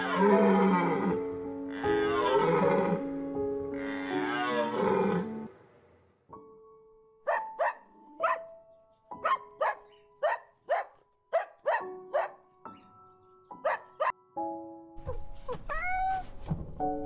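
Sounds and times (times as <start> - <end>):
background music with held notes: 0.0 - 5.5, 6.3 - 17.0
dog barking: 7.3 - 8.6, 9.2 - 12.4, 13.6 - 14.1.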